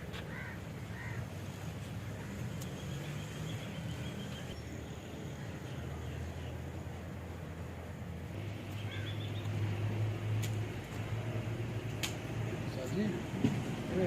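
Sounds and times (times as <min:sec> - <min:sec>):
crow cawing: 0:00.3 - 0:01.2.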